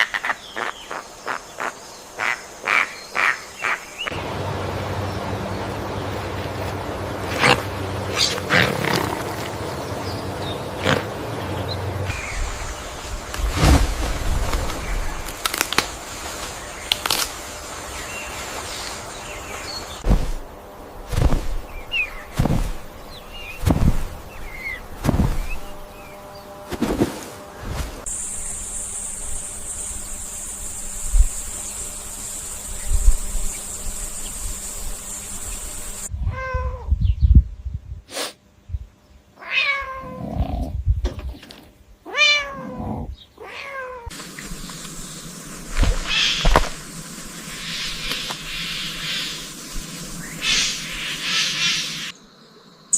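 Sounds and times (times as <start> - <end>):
steady high hiss: 0.0 - 8.6, 9.3 - 36.1, 44.1 - 52.9
cat meowing: 36.3 - 36.9, 39.4 - 40.6, 42.1 - 44.1.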